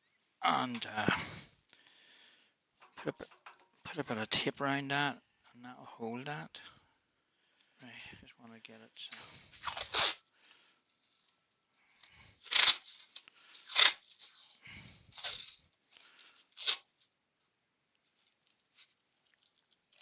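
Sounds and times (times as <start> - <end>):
tape pulled off roll: 12.4 - 14.5.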